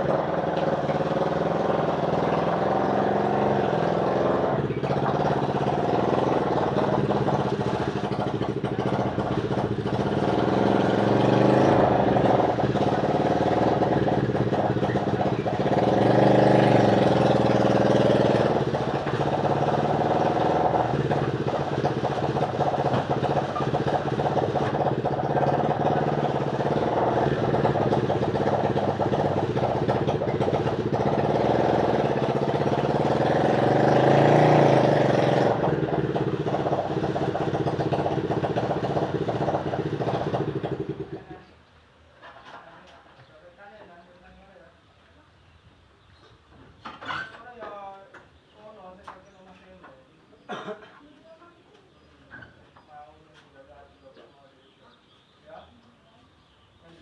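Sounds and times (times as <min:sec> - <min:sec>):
motorcycle engine revving: 0:00.0 - 0:41.5.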